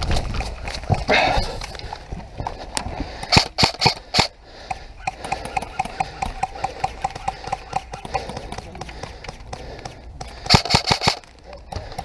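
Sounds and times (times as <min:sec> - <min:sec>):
loud sharp cracks: 0:03.3 - 0:04.3, 0:10.4 - 0:11.3.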